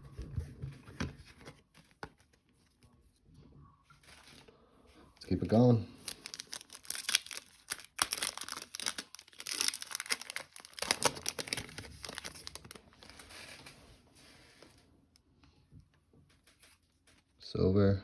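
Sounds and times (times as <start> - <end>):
foil wrapper tearing and crinkling: 6.0 - 13.6.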